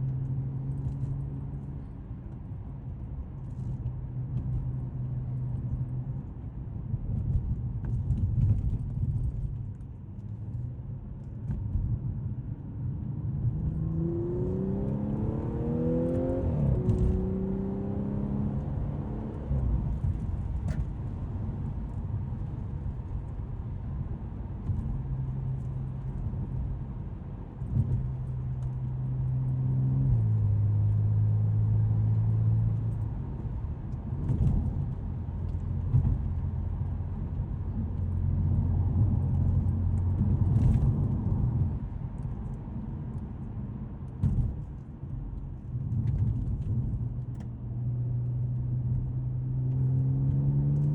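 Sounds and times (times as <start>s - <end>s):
car engine accelerating: 13.0s - 42.5s, 45.8s - 50.9s.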